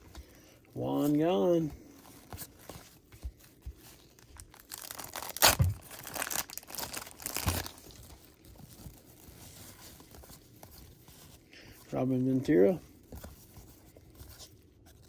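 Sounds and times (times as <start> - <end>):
wrapper crinkling and tearing: 3.9 - 10.5.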